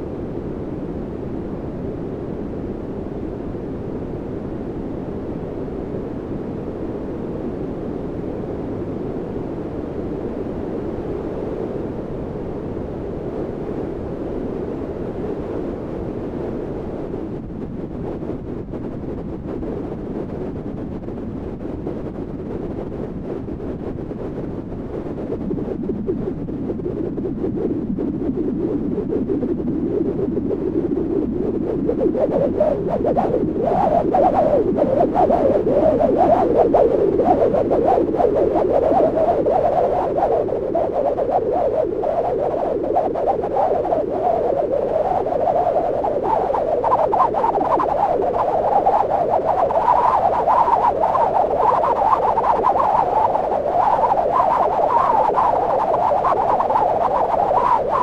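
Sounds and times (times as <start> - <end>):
synthesized whistling wind: 24.3 - 58.0.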